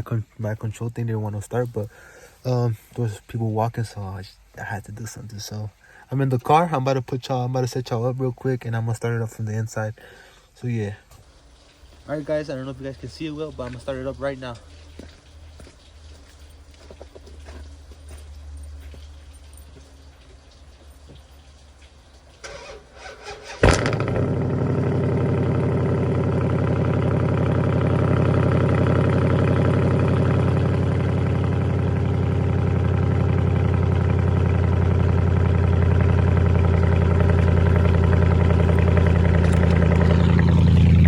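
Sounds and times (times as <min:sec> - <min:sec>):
starter motor cranking: 0:22.4 - 0:41.0
car engine idling loudly: 0:23.5 - 0:41.0.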